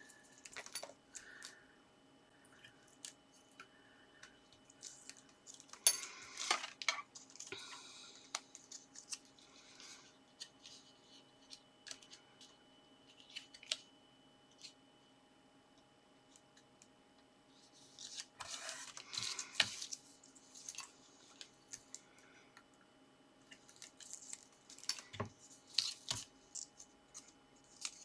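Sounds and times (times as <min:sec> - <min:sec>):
faint steady hum: 0:00.0 - 0:28.0
paper rustling and folding: 0:17.5 - 0:22.1, 0:23.4 - 0:28.0.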